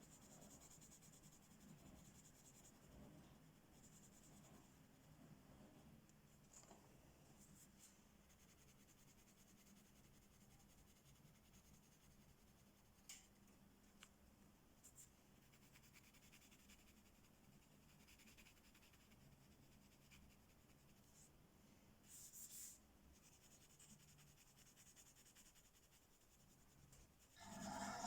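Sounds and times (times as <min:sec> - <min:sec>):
coloring strokes scratching paper: 0:00.0 - 0:04.7, 0:07.4 - 0:13.1, 0:14.8 - 0:21.3, 0:22.0 - 0:28.0
scrape on paper: 0:22.1 - 0:28.0.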